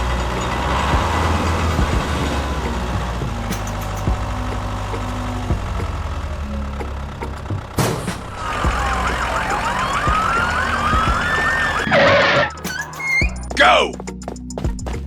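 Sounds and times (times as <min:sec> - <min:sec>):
vehicle engine humming: 0:00.0 - 0:15.0
siren wails: 0:08.3 - 0:13.6.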